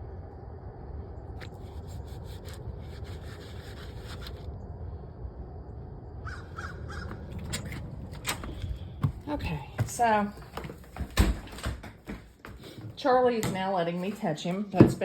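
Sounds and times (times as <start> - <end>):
steady low rumble: 0.0 - 10.9
crows cawing: 6.2 - 7.4.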